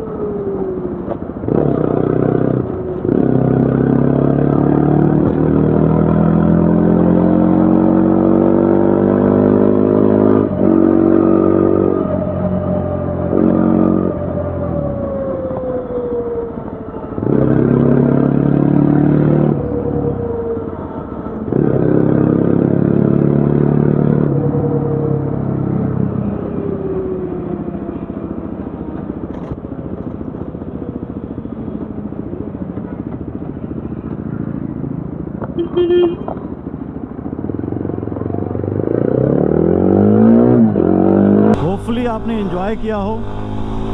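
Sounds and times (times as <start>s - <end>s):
motorcycle engine accelerating: 41.6s - 43.9s.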